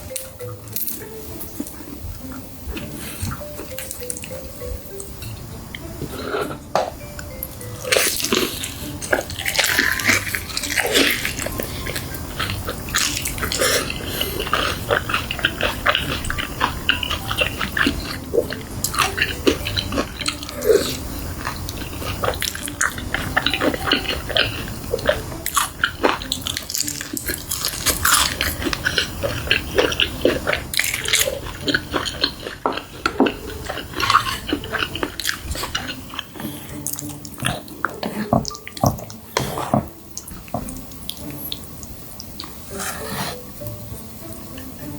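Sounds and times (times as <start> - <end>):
wet mouth sounds: 7.6 - 43.7
crunchy chewing: 7.7 - 43.4.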